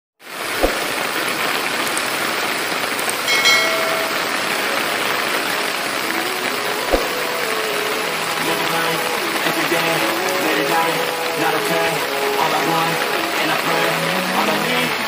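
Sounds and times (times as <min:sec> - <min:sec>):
heavy rain hissing: 0:00.2 - 0:15.0
high-pitched tone: 0:03.3 - 0:08.4.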